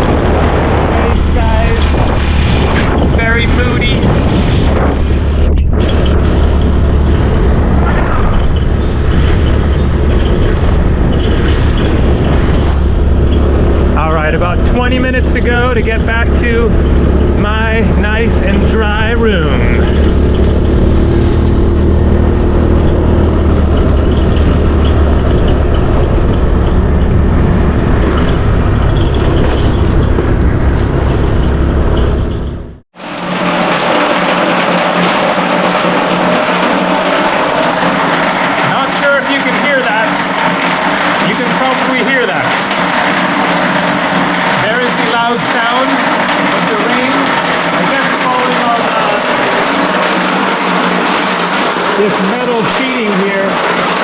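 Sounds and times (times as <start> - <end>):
wind rushing on microphone: 0.0 - 32.8
motorbike engine running: 0.0 - 54.0.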